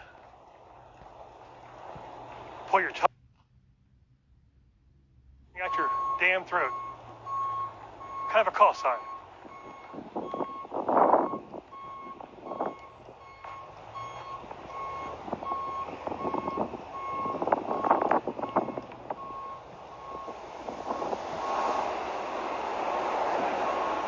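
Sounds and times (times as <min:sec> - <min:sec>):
vehicle rumble: 0:00.0 - 0:24.0
vehicle reverse alarm beeping: 0:05.6 - 0:24.0.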